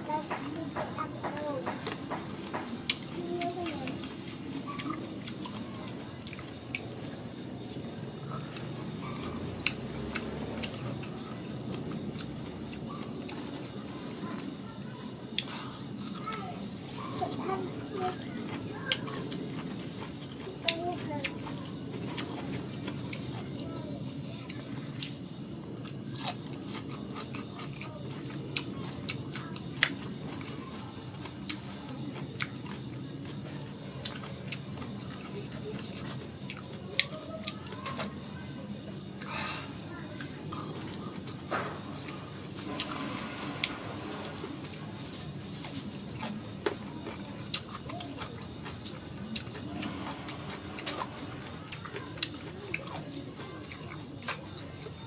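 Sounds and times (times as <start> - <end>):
person chewing mango: 4.0 - 13.7, 15.3 - 16.3, 24.5 - 33.4, 42.6 - 54.7.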